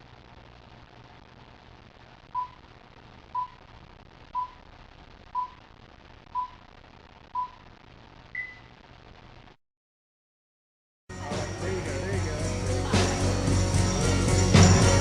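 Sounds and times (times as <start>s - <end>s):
low hum and hiss: 0.0s - 9.6s
short electronic beeps: 8.4s - 8.7s.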